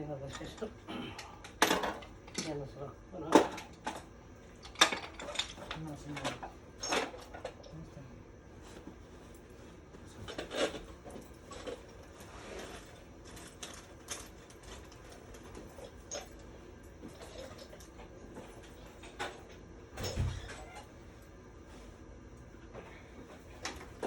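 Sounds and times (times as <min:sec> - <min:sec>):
tools clicking and rattling: 0:03.4 - 0:07.5.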